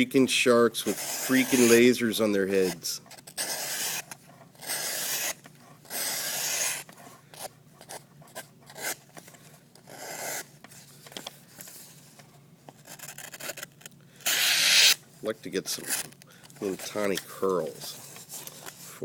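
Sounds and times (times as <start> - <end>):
knife slicing paper: 0.9 - 1.8, 2.6 - 6.9, 14.3 - 15.0.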